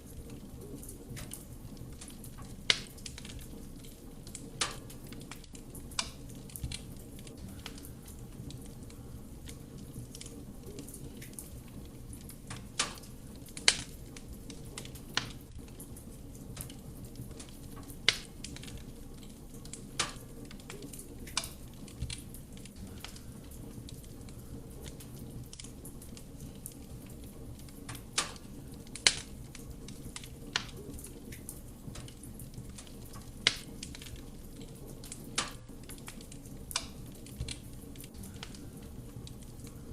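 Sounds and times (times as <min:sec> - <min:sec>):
burning wood crackling and popping: 0:00.0 - 0:39.9
fire flame rumble: 0:00.0 - 0:39.9.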